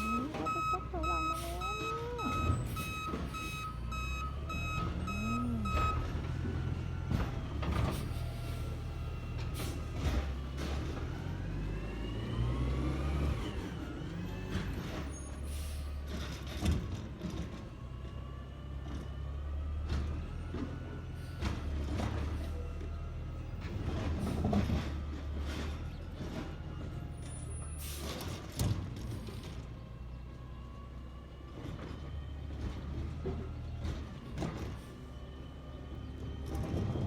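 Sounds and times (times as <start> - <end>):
truck backup beeper: 0.0 - 9.0
truck engine rumble: 0.0 - 37.0.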